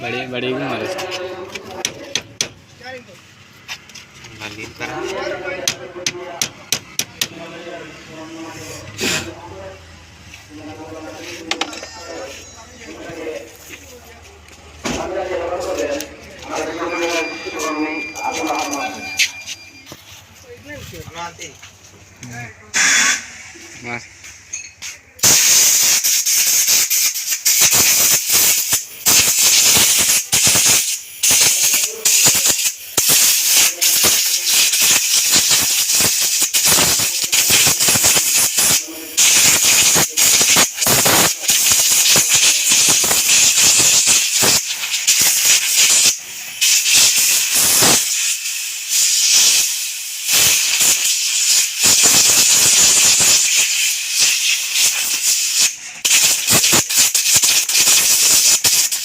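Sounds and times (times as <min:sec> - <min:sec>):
pressurised air jet hissing: 0:22.7 - 0:23.7, 0:25.2 - 0:59.0.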